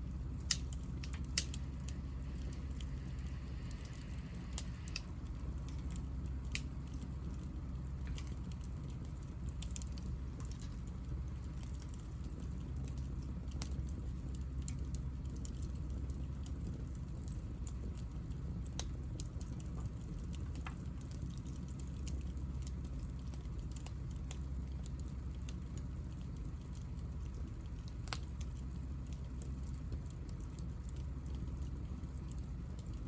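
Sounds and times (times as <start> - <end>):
low rumble: 0.0 - 9.3
wood crackling and popping: 0.0 - 33.0.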